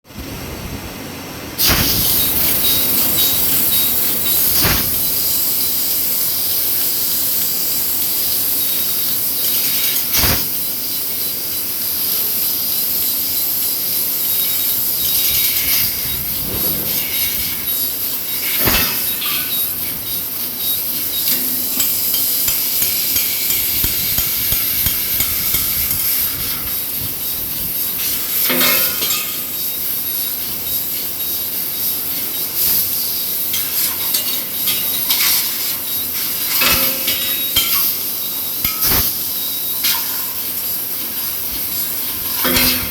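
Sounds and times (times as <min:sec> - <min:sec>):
laser cutting machine hissing: 0:01.6 - 0:42.9
sharp metallic knocks: 0:21.6 - 0:26.4.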